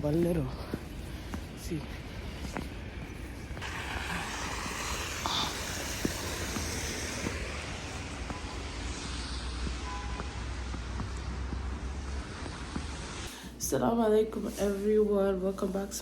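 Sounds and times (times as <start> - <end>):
low rumble: 0.0 - 13.3
outdoor rushing noise: 1.3 - 13.3.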